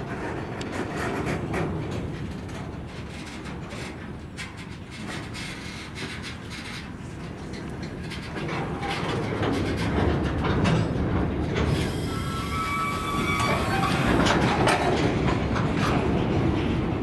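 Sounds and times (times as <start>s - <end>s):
freight wagons rumbling on rails: 0.0s - 17.0s
wheels knocking and clanking: 0.0s - 17.0s
high brake squeal: 11.8s - 14.3s.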